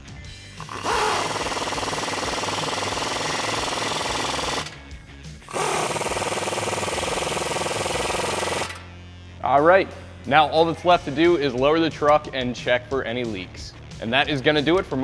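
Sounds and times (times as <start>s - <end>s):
impact wrench hammering: 0.6s - 4.8s, 5.4s - 8.8s.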